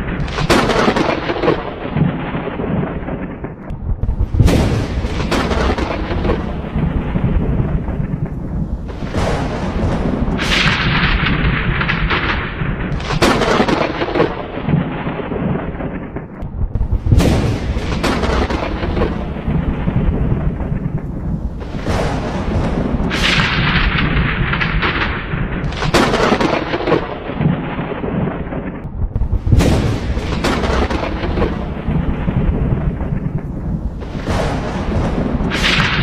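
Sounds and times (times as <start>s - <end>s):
low thunder rumble: 0.0s - 36.0s
thunder cracks: 0.0s - 36.0s.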